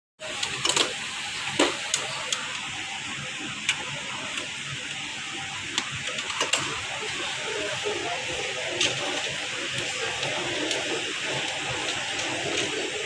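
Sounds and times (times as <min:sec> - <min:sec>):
copier running hiss: 0:00.2 - 0:13.0.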